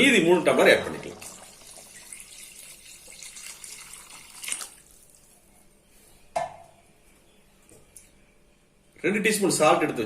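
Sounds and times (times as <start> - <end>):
water pouring into a pot: 0.5 - 5.2.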